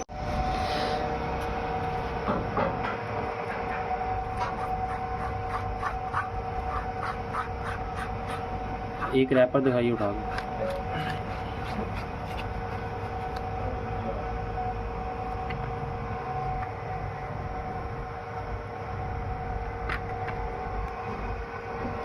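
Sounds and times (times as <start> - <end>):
factory machinery rumbling: 0.0 - 22.0
two-tone hum: 0.0 - 22.0.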